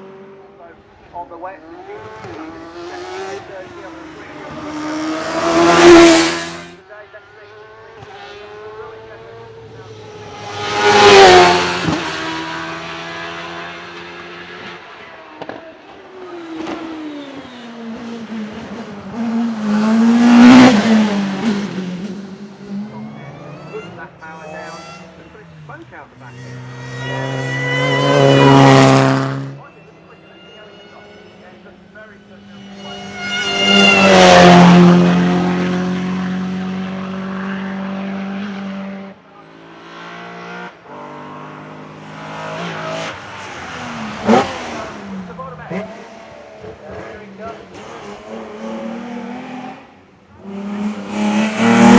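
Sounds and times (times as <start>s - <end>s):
race car engine passing: 1.6s - 6.8s, 7.5s - 51.9s
gear changes: 9.6s - 29.6s, 32.3s - 38.8s, 41.5s - 51.9s.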